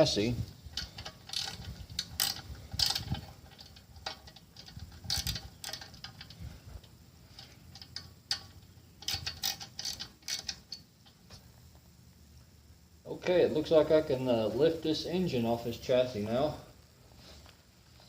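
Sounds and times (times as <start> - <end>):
metallic clicks and rattles: 0.0 - 11.4.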